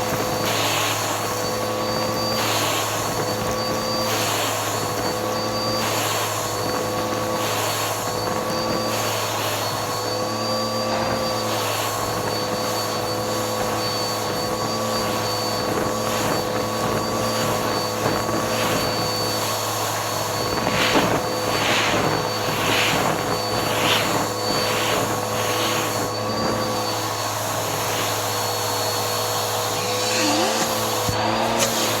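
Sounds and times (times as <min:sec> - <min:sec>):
vacuum cleaner motor whine: 0:00.0 - 0:32.0
rushing suction noise: 0:16.0 - 0:32.0.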